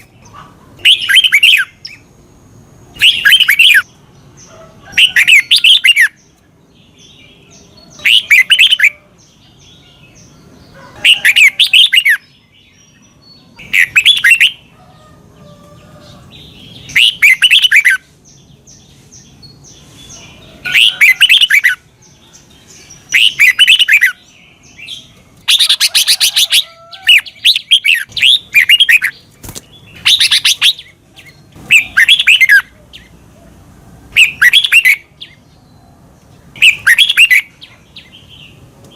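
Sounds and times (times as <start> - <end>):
bird singing whistled phrases: 0.9 - 2.0, 3.0 - 3.8, 13.7 - 14.6, 16.9 - 18.0, 23.1 - 24.2, 31.7 - 32.7, 34.2 - 35.4, 36.6 - 37.5.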